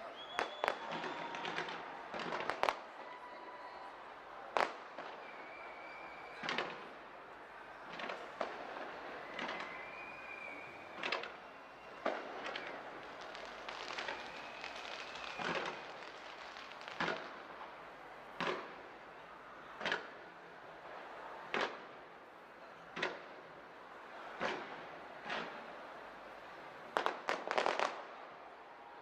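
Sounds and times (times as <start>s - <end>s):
faint high whistle: 0.0s - 2.0s, 2.9s - 4.5s, 5.1s - 16.1s
fireworks crackling: 0.0s - 3.0s, 4.5s - 7.0s, 7.7s - 22.0s, 23.0s - 28.3s
fireworks bangs: 0.1s - 3.0s, 4.5s - 7.0s, 7.7s - 22.0s, 24.2s - 28.1s.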